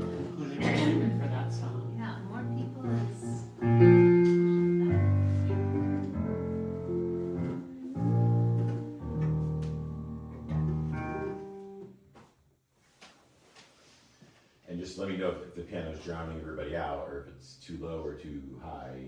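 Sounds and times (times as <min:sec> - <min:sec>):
piano chords: 0:00.0 - 0:11.9.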